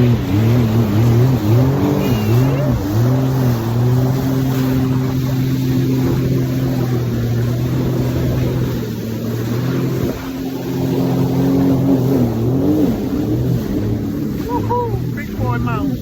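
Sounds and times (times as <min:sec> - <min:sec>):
jet ski engine revving: 0:00.0 - 0:16.0.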